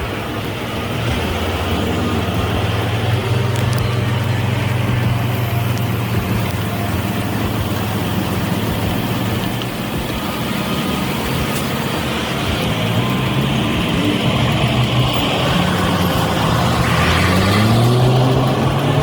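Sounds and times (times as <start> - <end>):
truck diesel engine droning: 0.0 - 19.0.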